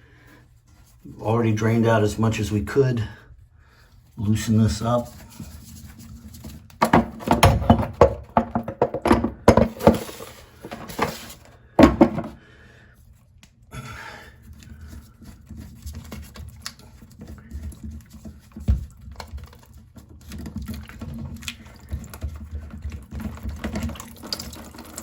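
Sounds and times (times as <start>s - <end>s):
handling sounds: 5.2s - 12.4s
tool knocking on toilet fitting: 6.8s - 10.0s, 11.8s - 12.4s.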